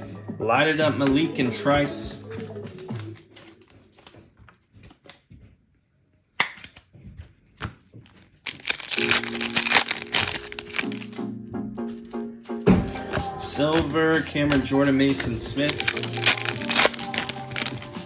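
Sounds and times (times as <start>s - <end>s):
background music: 0.0s - 3.4s, 8.7s - 18.0s
foil wrapper tearing and crinkling: 8.1s - 11.2s, 13.7s - 18.0s.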